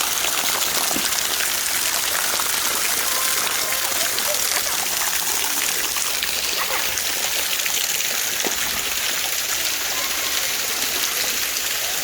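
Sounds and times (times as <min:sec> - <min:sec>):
stream water running over rocks: 0:00.0 - 0:12.0.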